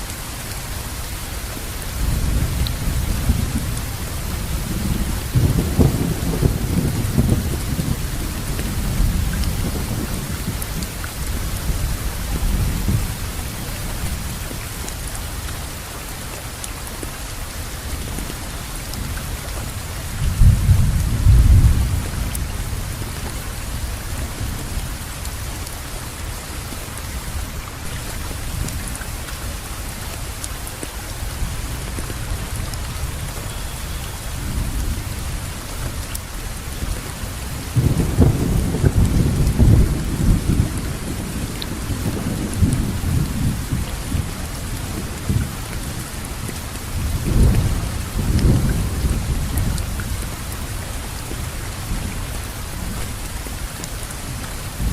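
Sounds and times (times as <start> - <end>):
steady rain falling: 0.0 - 54.9
rolling thunder: 2.0 - 10.8, 37.6 - 45.6.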